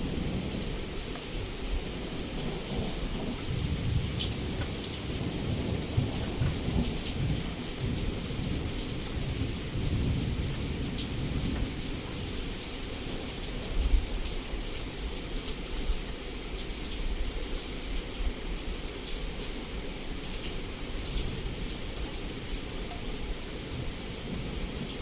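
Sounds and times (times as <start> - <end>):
rolling thunder: 0.0 - 12.5
heavy rain against a window: 0.0 - 25.0.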